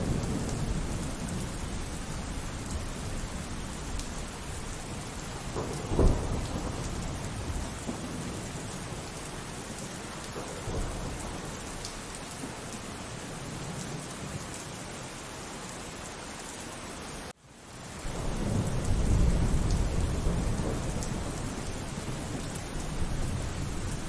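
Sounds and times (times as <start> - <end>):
faint thunder rumble: 0.0 - 14.5, 18.0 - 24.0
steady rainfall: 0.0 - 24.0
thunderclap: 5.2 - 9.1, 18.1 - 24.0.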